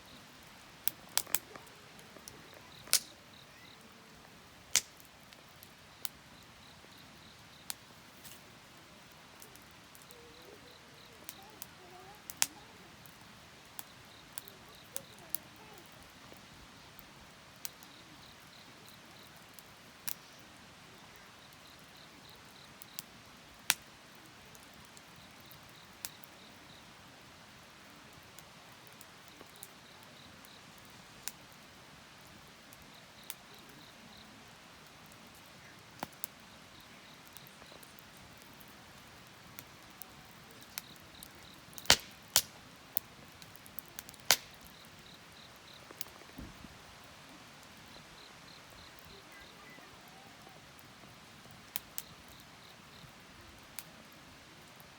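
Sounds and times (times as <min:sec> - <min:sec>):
insect chirping trills: 0:00.0 - 0:04.2, 0:05.3 - 0:23.1, 0:32.0 - 0:53.2
faint steady hiss: 0:00.0 - 0:54.9
wood fire crackling: 0:00.0 - 0:54.9.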